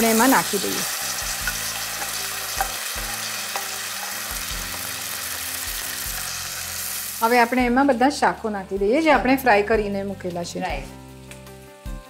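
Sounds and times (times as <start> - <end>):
paste sizzling in hot oil: 0.0 - 7.9
spatula stirring: 0.2 - 4.7.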